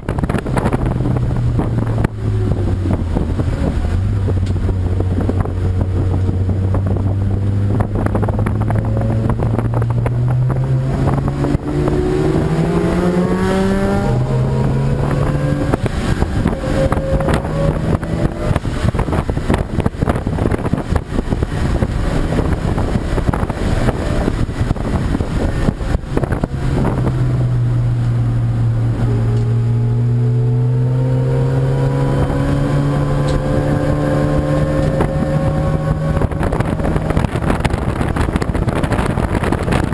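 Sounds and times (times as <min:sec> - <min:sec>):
race car engine accelerating: 0:00.0 - 0:39.9
wind buffeting microphone: 0:00.0 - 0:39.9.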